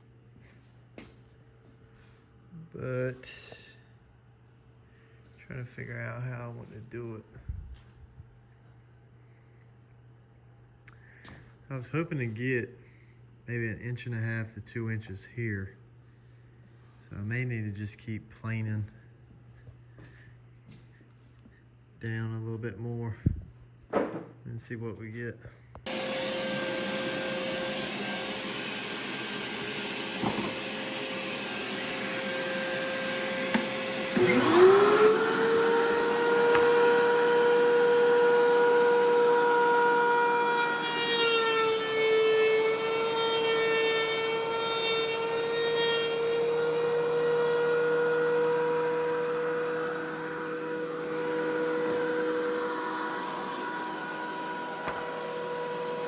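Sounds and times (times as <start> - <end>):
electric planer whining: 25.9 - 56.0.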